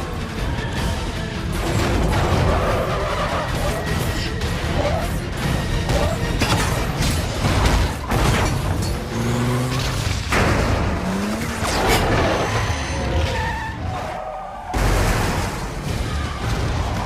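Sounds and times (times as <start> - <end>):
engines running: 0.0 - 17.0
car tyres skidding: 10.4 - 15.4.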